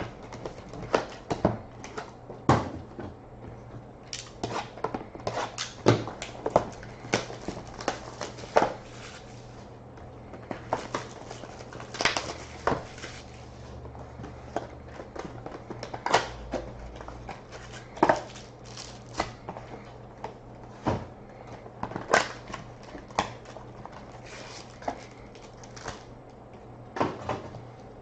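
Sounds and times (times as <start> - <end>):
faint steady hum: 0.0 - 28.0
packaging crinkling: 5.5 - 9.6, 10.6 - 13.6, 15.5 - 19.4, 22.0 - 26.1.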